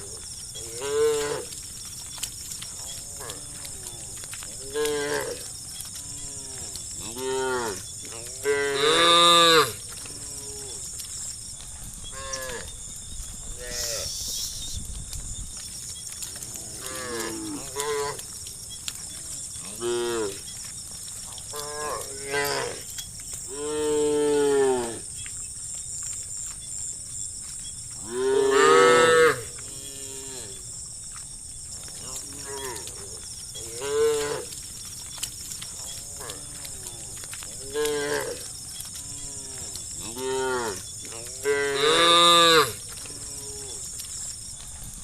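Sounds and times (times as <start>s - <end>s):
cows mooing: 0.0s - 1.6s, 2.8s - 10.9s, 16.4s - 18.4s, 19.1s - 20.5s, 21.5s - 22.9s, 28.0s - 30.6s, 32.0s - 34.6s, 35.7s - 43.9s.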